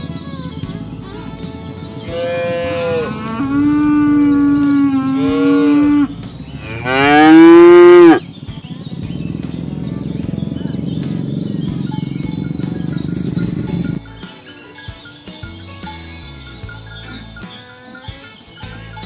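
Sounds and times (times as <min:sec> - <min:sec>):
cattle mooing: 0:02.0 - 0:08.3.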